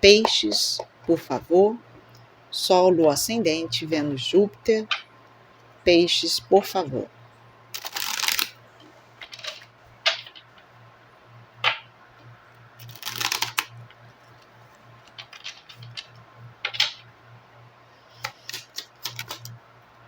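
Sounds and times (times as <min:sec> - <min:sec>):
cards riffle shuffling: 0:07.8 - 0:08.6, 0:12.8 - 0:13.7, 0:18.2 - 0:19.5
cards snapping and tapping: 0:18.2 - 0:19.5.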